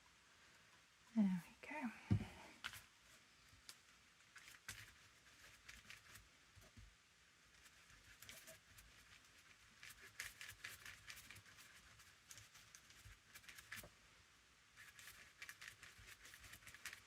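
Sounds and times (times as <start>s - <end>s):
paper scratching and rustling: 4.3s - 6.3s, 7.5s - 13.9s, 14.8s - 17.0s.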